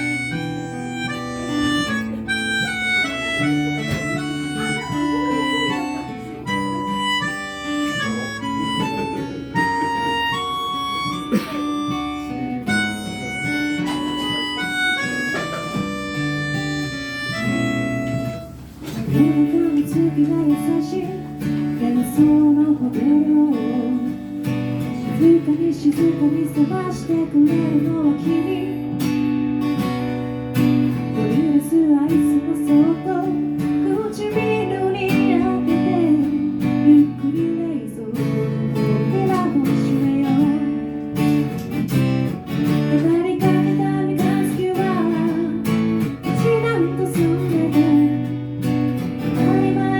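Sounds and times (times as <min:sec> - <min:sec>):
held-note melody: 0:00.0 - 0:18.6
acoustic guitar pop music: 0:00.0 - 0:49.9.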